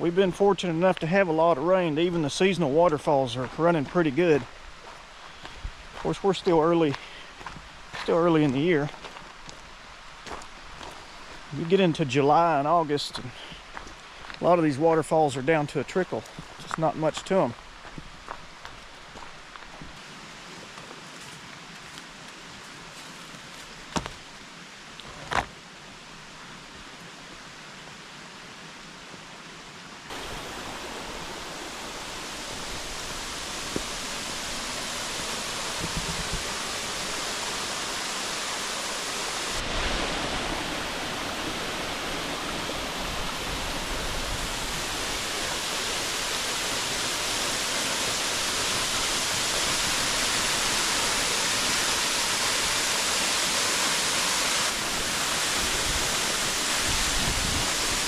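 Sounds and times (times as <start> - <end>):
waterfall rushing: 0.0 - 9.1, 30.1 - 58.0.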